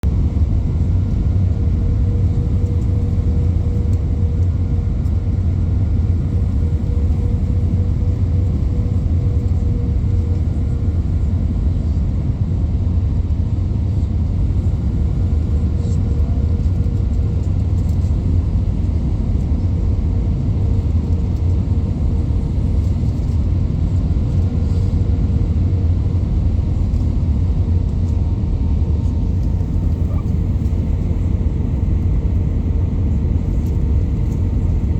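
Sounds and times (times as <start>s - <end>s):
cabin low rumble: 0.0s - 34.9s
faint engine tone: 0.7s - 12.3s, 29.0s - 34.9s.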